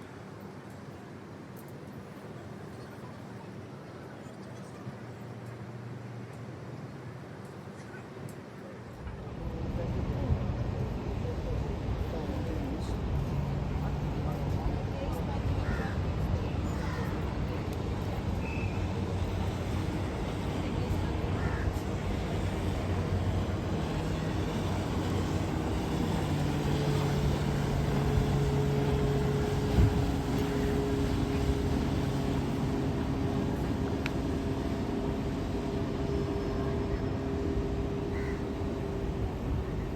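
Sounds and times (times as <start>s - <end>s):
wind: 0.0s - 39.9s
boat engine running: 13.0s - 39.9s
water noise: 13.1s - 39.9s.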